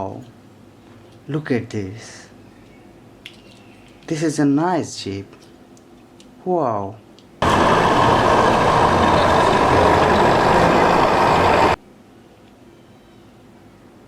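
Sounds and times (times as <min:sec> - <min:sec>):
harsh engine sound: 0:07.4 - 0:11.8.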